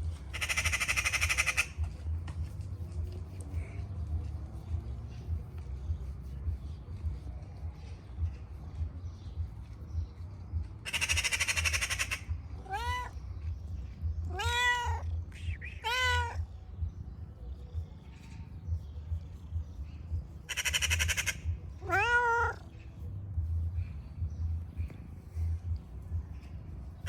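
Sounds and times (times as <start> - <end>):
steady low rumble: 0.0 - 27.0
cat meowing: 11.9 - 13.2, 14.2 - 16.6, 20.5 - 22.7.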